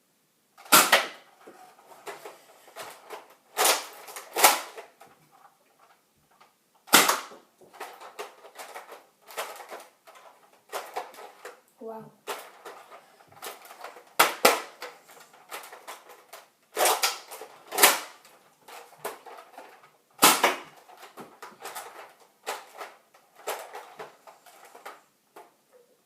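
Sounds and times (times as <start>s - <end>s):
toy blaster plastic clicks: 2.8s - 4.9s, 13.5s - 16.1s.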